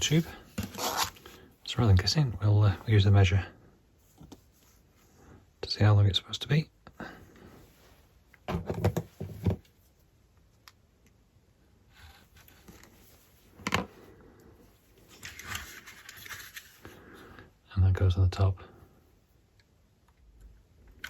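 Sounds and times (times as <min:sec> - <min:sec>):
rustling and clicks of handling: 0:12.0 - 0:17.0.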